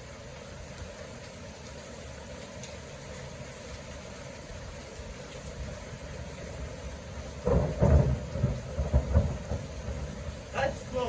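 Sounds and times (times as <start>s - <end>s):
thunderclap rumbling: 6.6s - 11.0s.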